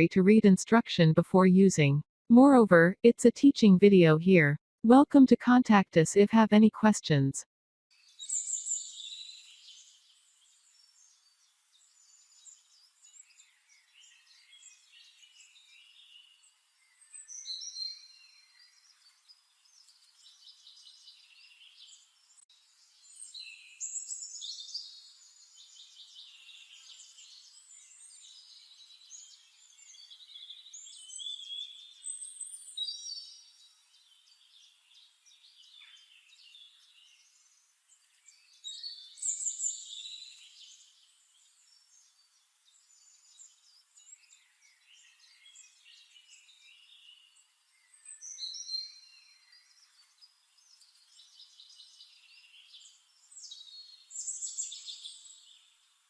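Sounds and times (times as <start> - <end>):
small birds chirping and trilling: 8.0 - 56.0.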